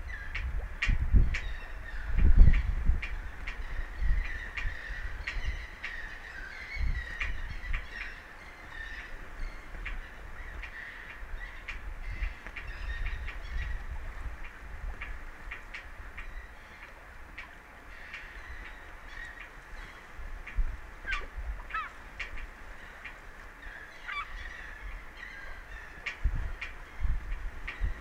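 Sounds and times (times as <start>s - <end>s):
wind gusts on microphone: 0.0s - 28.0s
birds harsh calls: 21.0s - 28.0s.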